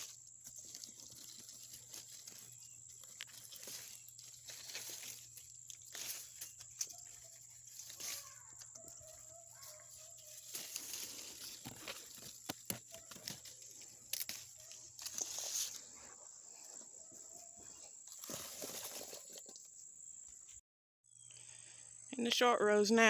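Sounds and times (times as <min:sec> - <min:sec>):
stems snapping: 0:00.0 - 0:15.8
leaves and stems rustling: 0:00.0 - 0:19.6.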